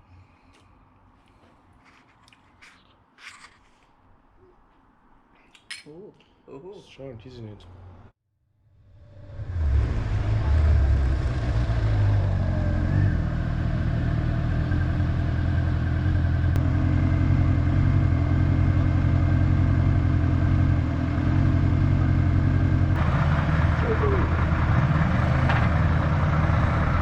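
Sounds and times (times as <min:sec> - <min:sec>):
motorcycle engine running: 0:10.4 - 0:27.0.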